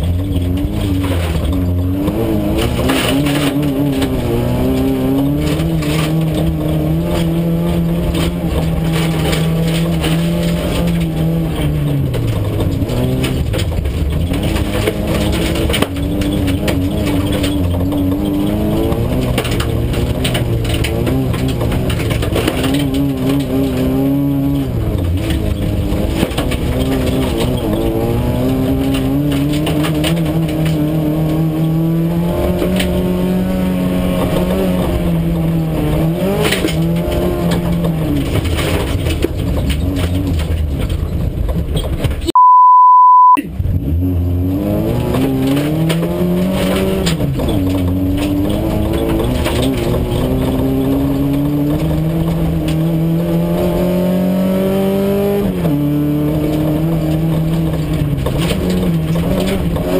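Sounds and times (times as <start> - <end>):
car engine revving: 0.0 - 42.2, 43.4 - 59.9
steady beep: 42.3 - 43.4.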